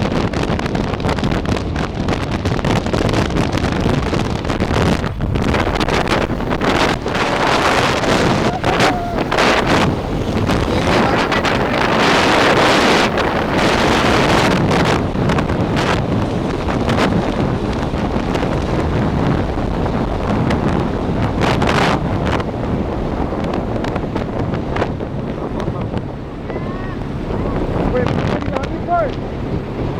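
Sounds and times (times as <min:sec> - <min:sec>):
gusty wind buffeting microphone: 0:00.0 - 0:29.9
moving train rumble: 0:02.5 - 0:21.1.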